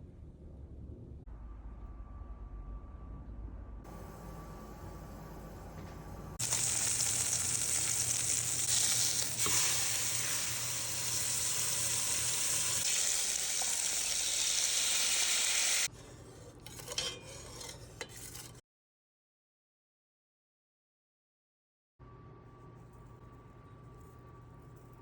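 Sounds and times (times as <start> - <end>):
meat sizzling in hot oil: 6.4 - 15.9.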